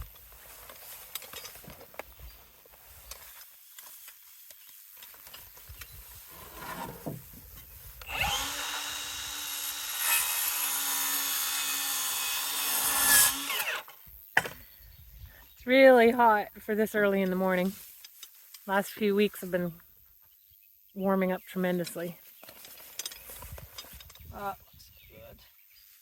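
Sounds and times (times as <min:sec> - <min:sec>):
boards knocking: 0:06.4 - 0:07.5
electric power tool motor: 0:08.0 - 0:13.9.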